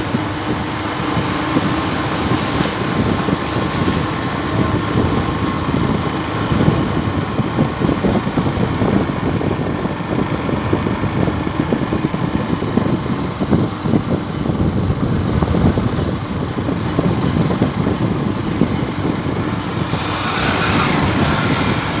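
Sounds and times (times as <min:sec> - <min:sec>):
vehicle engine and road rumble: 0:00.0 - 0:22.0
hiss: 0:19.6 - 0:22.0.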